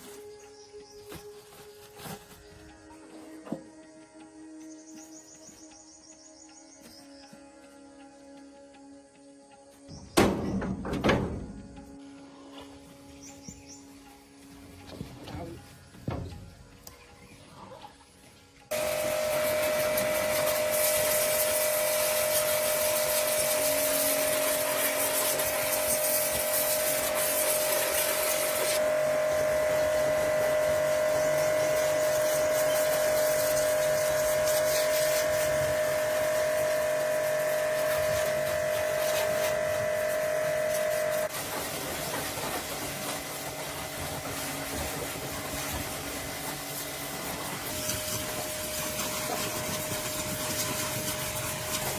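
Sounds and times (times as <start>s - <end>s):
power tool whining: 18.7s - 51.9s.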